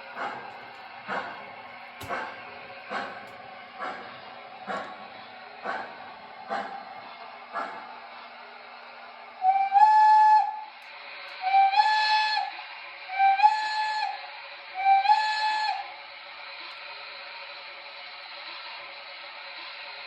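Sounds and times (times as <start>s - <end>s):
model steam whistle blasts: 9.4s - 10.8s, 11.4s - 16.0s.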